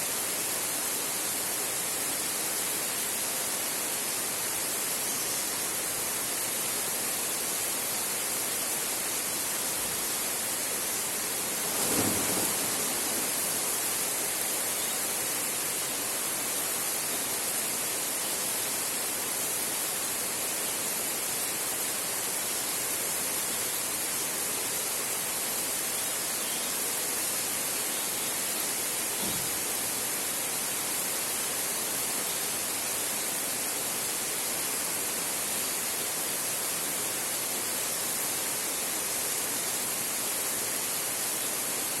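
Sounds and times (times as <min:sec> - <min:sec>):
heavy rain on a tin roof: 0:00.0 - 0:42.0
thunder rumble: 0:11.6 - 0:14.3.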